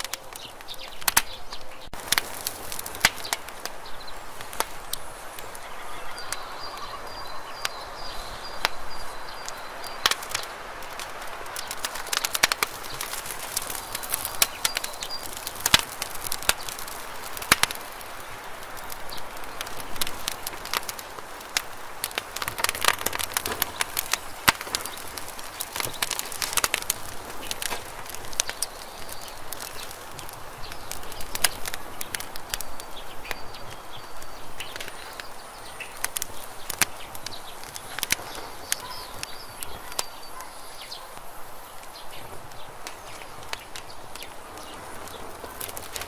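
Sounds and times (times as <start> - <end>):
campfire crackling and popping: 0.0 - 46.0
faint bird chirps: 3.2 - 10.6, 28.2 - 46.0.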